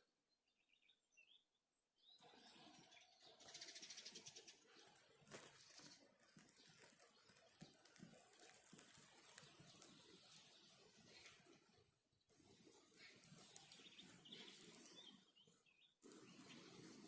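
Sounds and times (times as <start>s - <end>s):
faint rain pattering: 3.7s - 11.7s, 12.3s - 15.1s.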